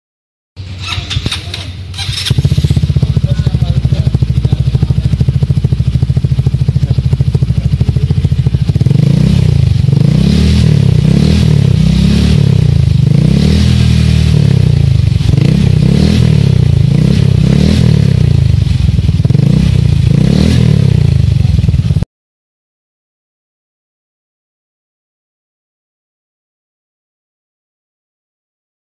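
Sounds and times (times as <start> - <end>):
scooter engine idling and revving: 0.6 - 22.1.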